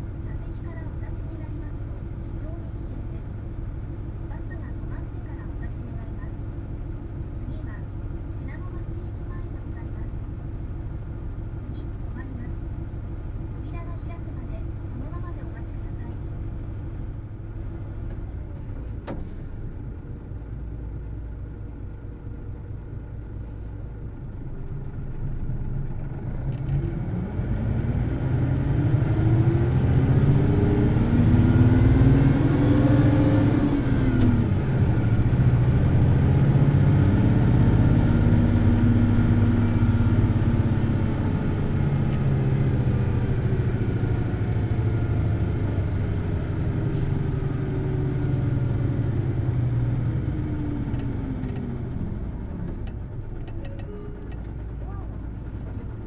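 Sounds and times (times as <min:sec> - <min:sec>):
bus engine revving: 0:24.8 - 0:56.0.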